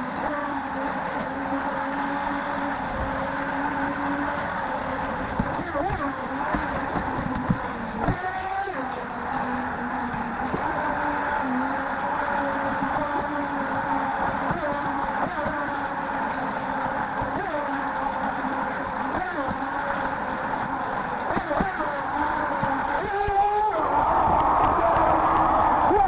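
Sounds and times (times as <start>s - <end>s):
rushing water: 0.0s - 23.4s
boat motor whine: 0.0s - 26.0s.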